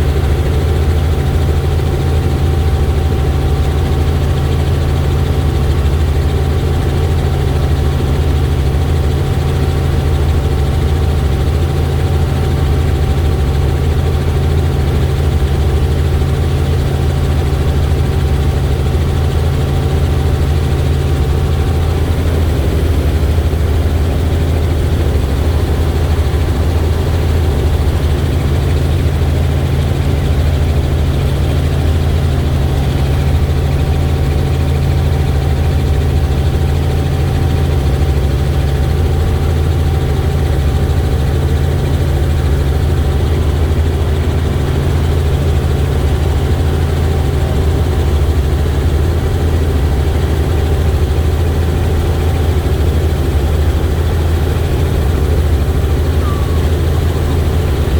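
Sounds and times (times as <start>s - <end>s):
helicopter rotor and engine drone: 0.0s - 57.9s
faint steady whine: 53.1s - 57.9s.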